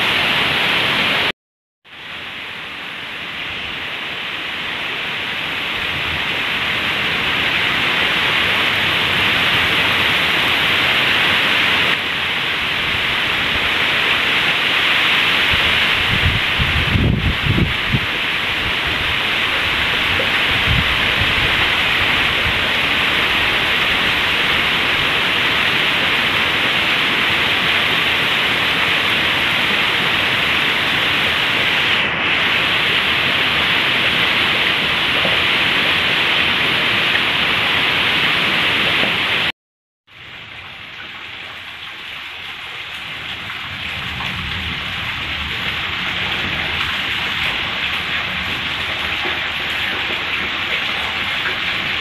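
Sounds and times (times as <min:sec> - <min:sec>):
heavy rain on grass and leaves: 0:00.0 - 0:01.3, 0:01.9 - 0:39.5, 0:40.1 - 0:52.0.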